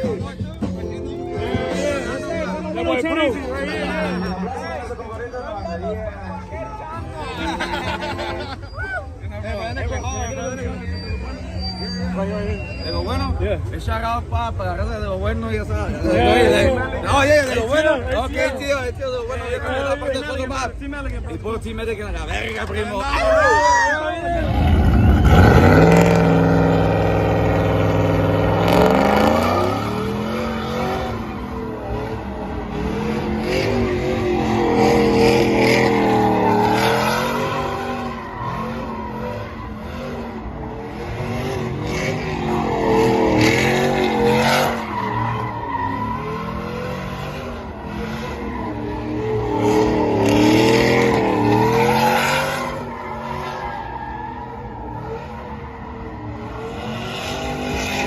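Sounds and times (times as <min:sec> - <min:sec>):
tire squeal: 0:00.0 - 0:20.5, 0:21.6 - 0:58.0
engine revving: 0:24.4 - 0:53.7, 0:54.4 - 0:58.0.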